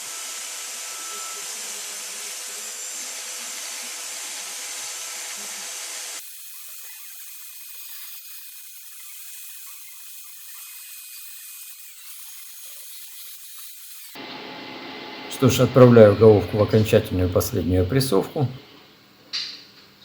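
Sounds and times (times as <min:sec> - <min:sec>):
electric drill grinding metal: 0:00.0 - 0:18.2
quiet hiss: 0:15.2 - 0:20.0.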